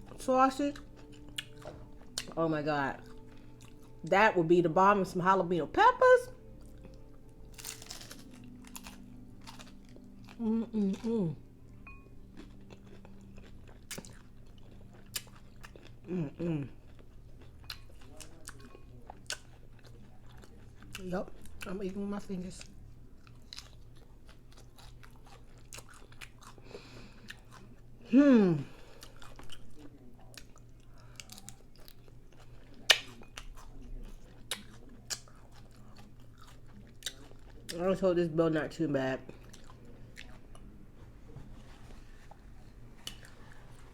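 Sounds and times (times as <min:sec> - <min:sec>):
crunchy chewing: 0:00.8 - 0:02.4, 0:03.0 - 0:04.0, 0:06.5 - 0:11.4, 0:12.2 - 0:21.7, 0:22.5 - 0:27.8, 0:28.7 - 0:37.8, 0:39.3 - 0:43.9
person humming: 0:10.4 - 0:11.5, 0:16.1 - 0:16.8.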